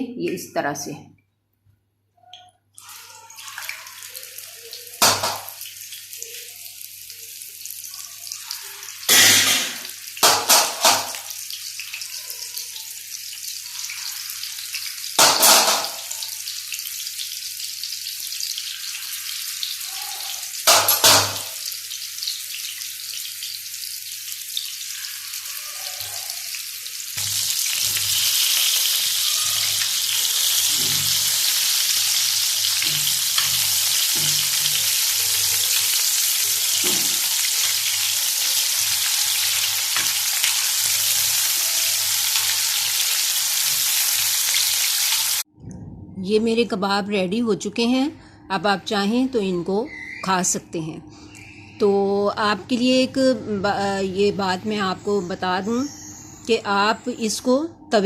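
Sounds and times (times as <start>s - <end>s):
meat sizzling in hot oil: 2.8s - 45.5s.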